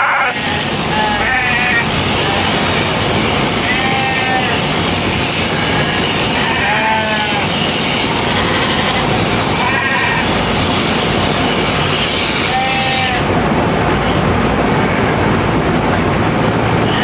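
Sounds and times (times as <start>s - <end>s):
sheep bleating: 0.0s - 10.5s, 12.4s - 13.4s
shearing clippers buzzing: 0.0s - 13.4s.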